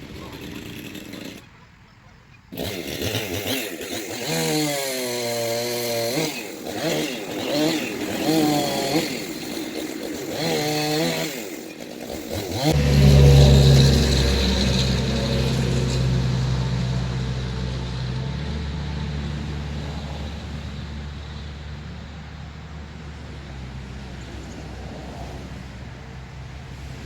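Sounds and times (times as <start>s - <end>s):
chainsaw revving: 0.0s - 1.5s, 2.5s - 18.6s
deep steady engine: 12.4s - 27.0s.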